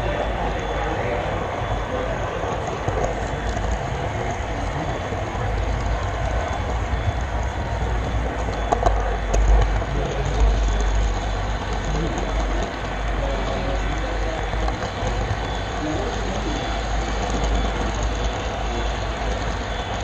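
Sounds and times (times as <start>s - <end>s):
model train rumbling on track: 0.0s - 20.0s
train wheel clicks: 0.0s - 20.0s.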